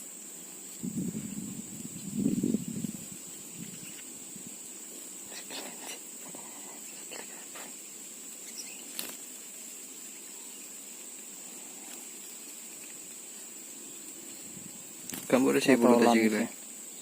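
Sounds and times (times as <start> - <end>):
high-pitched insect drone: 0.0 - 17.0
faint rustles and clicks: 2.8 - 16.8.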